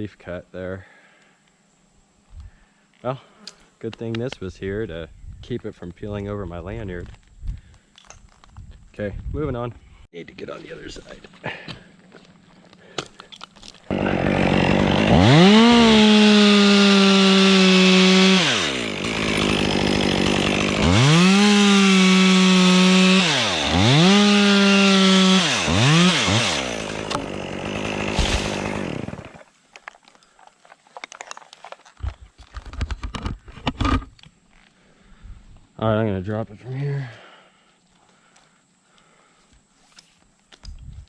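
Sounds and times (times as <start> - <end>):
chainsaw cutting wood: 13.6 - 29.5.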